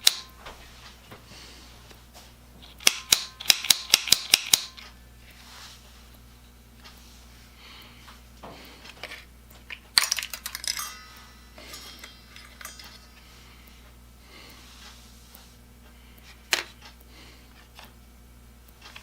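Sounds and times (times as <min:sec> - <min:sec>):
sharp click: 0:00.0 - 0:00.4, 0:02.6 - 0:05.0
low electrical hum: 0:00.0 - 0:19.0
metallic clicks and clinks: 0:09.7 - 0:13.2.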